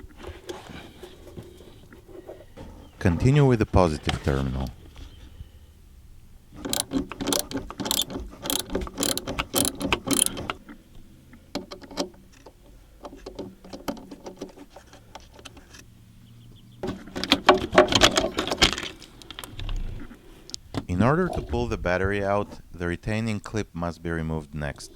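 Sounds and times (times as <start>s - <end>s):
socket ratchet clicking: 6.6s - 10.6s.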